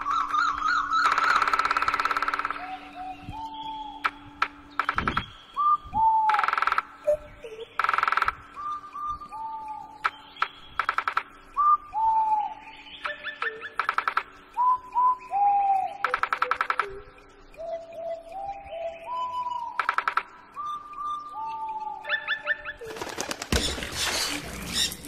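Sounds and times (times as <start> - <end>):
loud rapid croaking rattle: 0.0 - 2.7, 4.0 - 5.5, 6.3 - 7.1, 7.8 - 8.6, 10.0 - 11.5, 13.7 - 14.5, 16.0 - 17.0, 19.8 - 20.5.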